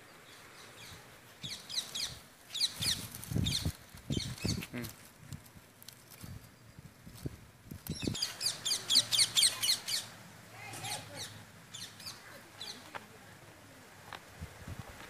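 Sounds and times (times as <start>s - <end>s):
bird chirping: 0.0s - 4.8s, 7.9s - 10.2s, 10.8s - 12.8s.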